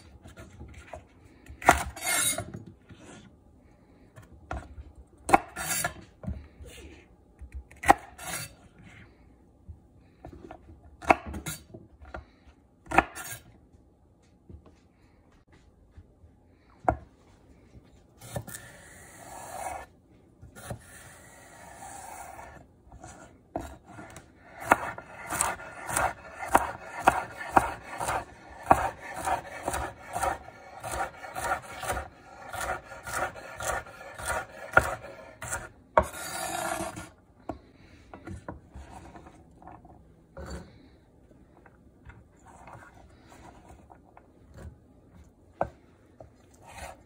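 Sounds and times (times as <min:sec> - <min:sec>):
knife chopping on wooden board: 0:23.0 - 0:37.1.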